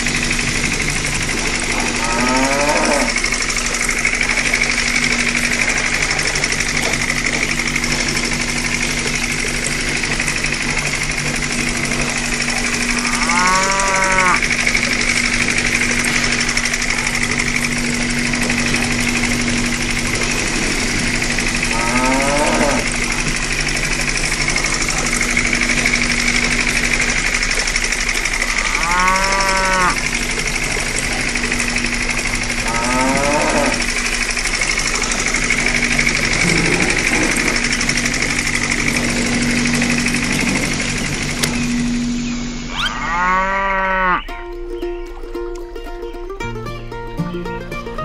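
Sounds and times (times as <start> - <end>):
small pump motor hum and rattle: 0.0 - 48.0
cattle mooing: 1.6 - 3.3, 12.1 - 14.6, 20.1 - 23.2, 28.4 - 30.5, 32.4 - 34.0, 34.9 - 41.0, 42.7 - 44.3.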